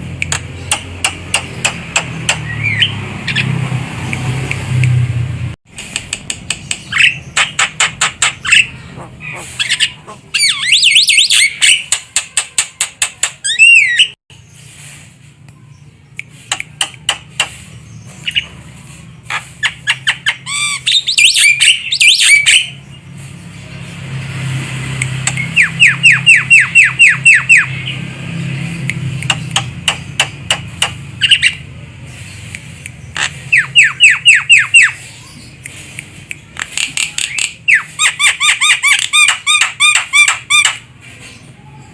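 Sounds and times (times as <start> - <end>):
myna calling: 6.9 - 14.2.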